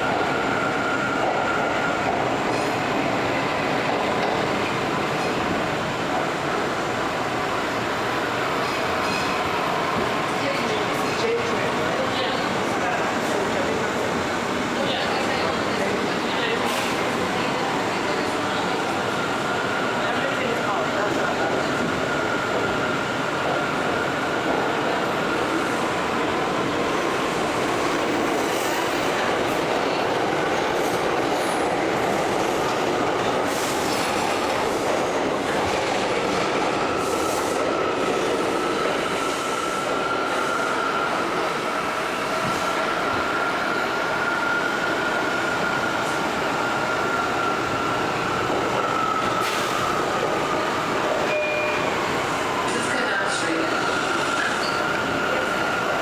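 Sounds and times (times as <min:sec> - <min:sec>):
subway car rumbling on track: 0:00.0 - 0:56.0.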